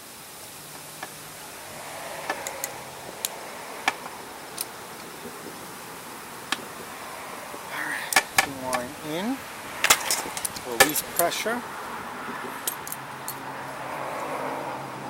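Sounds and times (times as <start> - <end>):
faint steady hiss: 0.0 - 15.0
small clicks and taps of tools: 2.3 - 5.1.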